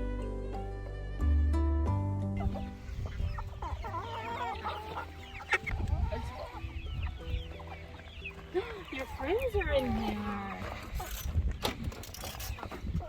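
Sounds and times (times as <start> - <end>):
plucked background music: 0.0 - 11.5
young turkeys chirping: 2.4 - 13.0.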